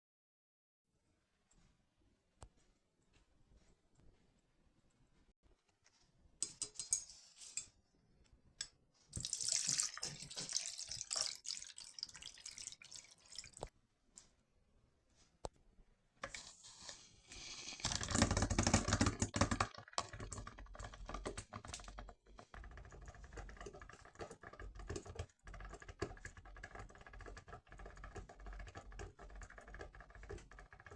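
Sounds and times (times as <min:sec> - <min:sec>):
crackling and popping: 0:17.7 - 0:30.9.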